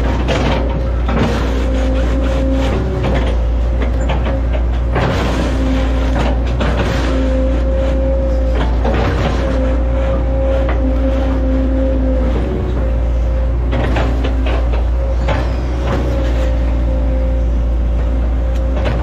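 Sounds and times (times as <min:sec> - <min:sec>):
short knocks and crunches: 0:00.0 - 0:11.3
excavator diesel engine running: 0:00.0 - 0:19.0
hydraulic whine: 0:00.0 - 0:19.0.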